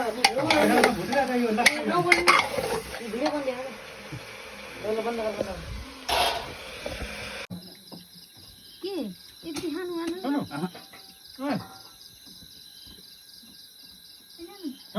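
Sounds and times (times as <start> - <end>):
insects chirping: 0.0 - 14.9.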